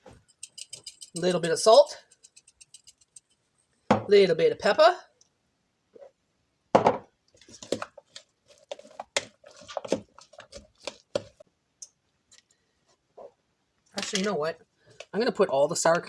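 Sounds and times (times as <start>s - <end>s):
utensil scraping a mixing bowl: 0.0s - 3.3s, 7.5s - 11.4s.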